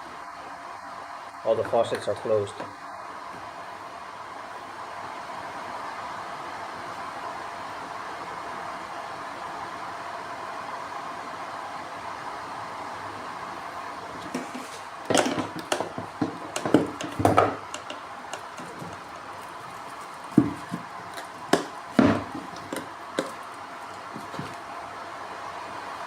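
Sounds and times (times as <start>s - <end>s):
machine hum: 13.3s - 26.0s
hard parts knocking and clattering: 14.3s - 23.5s.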